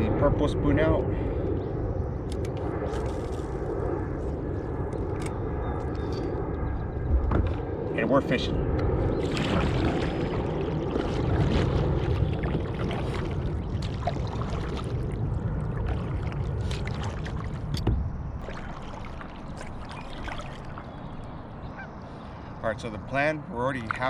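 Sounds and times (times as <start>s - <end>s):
low steady rumble: 0.0s - 24.0s
paddle splashing water: 9.2s - 17.8s, 18.4s - 21.9s.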